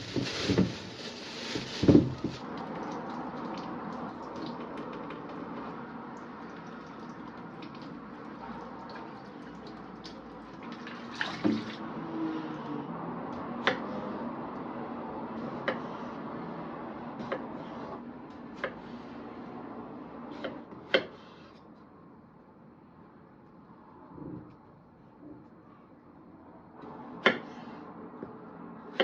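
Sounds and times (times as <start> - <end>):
tap water running into sink: 2.5 - 11.8.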